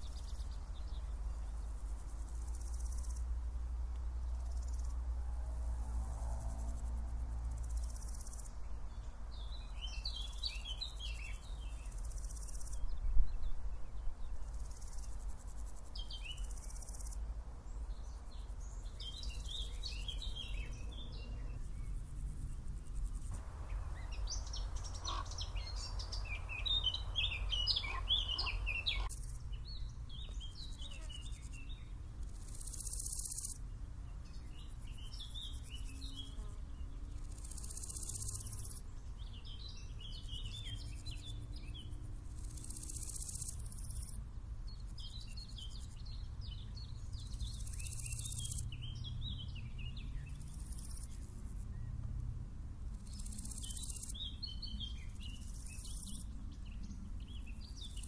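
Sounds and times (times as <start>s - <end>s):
songbirds chirping: 0.0s - 58.0s
hissy insect stridulation: 1.2s - 8.6s, 9.4s - 12.8s, 14.2s - 38.9s, 39.6s - 46.0s, 47.2s - 49.0s, 50.1s - 51.6s, 52.8s - 56.4s
steady low rumble: 18.9s - 30.6s.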